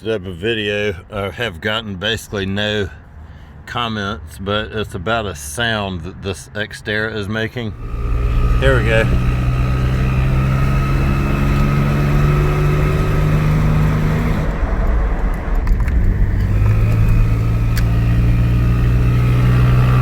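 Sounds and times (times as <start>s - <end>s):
car engine running: 7.5s - 20.0s.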